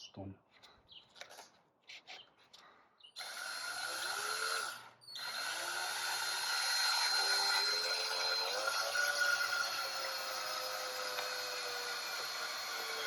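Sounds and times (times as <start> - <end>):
power drill driving a screw: 3.2 - 13.0.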